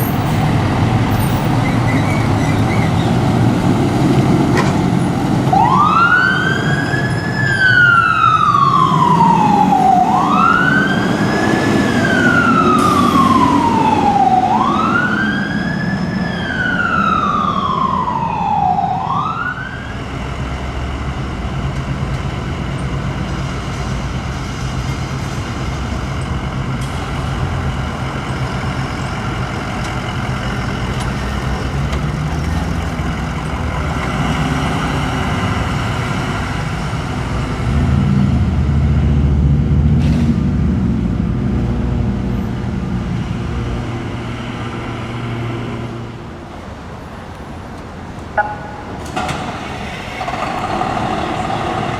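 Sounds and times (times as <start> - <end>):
heavy vehicle engine: 0.0 - 51.9
passing traffic: 0.0 - 51.9
emergency siren wailing: 3.6 - 21.5, 48.4 - 49.0.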